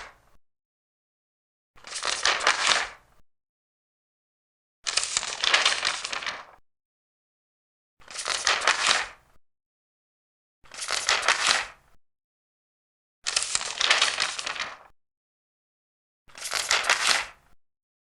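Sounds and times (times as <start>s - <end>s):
paper pages turning: 1.8s - 3.0s, 4.9s - 6.6s, 8.0s - 9.2s, 10.7s - 11.8s, 13.3s - 14.9s, 16.3s - 17.4s.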